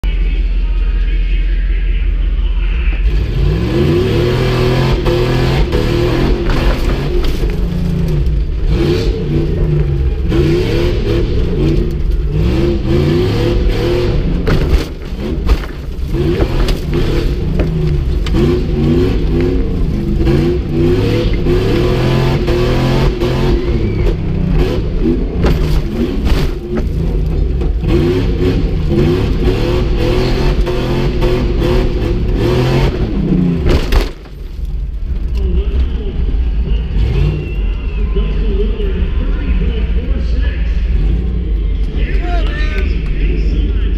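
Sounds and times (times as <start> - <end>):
car engine idling: 0.0 - 43.9
car engine revving: 2.8 - 43.9
car body knocks and rattles: 14.4 - 18.9, 24.5 - 27.8, 33.6 - 34.6.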